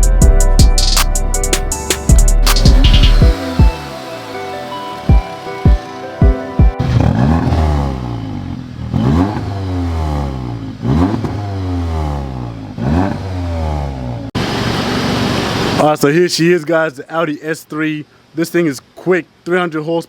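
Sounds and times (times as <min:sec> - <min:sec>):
car engine accelerating hard: 0:02.4 - 0:15.8.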